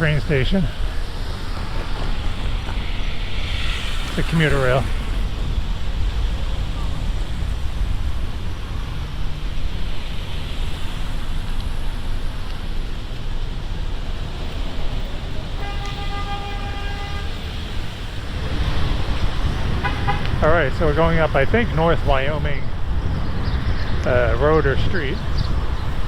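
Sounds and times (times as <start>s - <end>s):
wind and road noise: 0.0s - 26.0s
bicycle horn: 15.6s - 17.6s, 19.7s - 20.5s.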